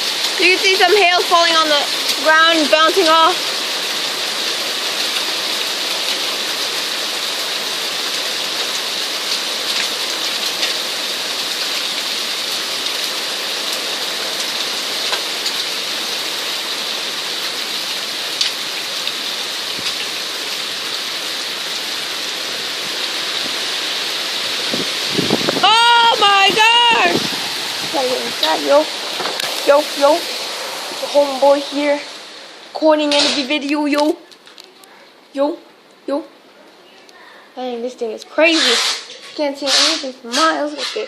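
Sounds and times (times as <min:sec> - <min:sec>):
hailstones ticking: 0:00.0 - 0:16.2, 0:17.5 - 0:20.2, 0:24.4 - 0:32.0, 0:32.7 - 0:34.7
heavy rain and hail: 0:00.0 - 0:36.2, 0:37.4 - 0:41.0.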